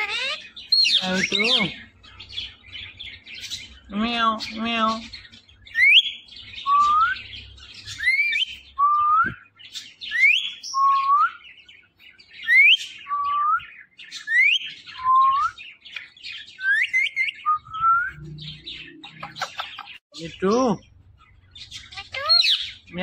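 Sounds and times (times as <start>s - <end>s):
parrot soft chatter: 0.0s - 1.4s.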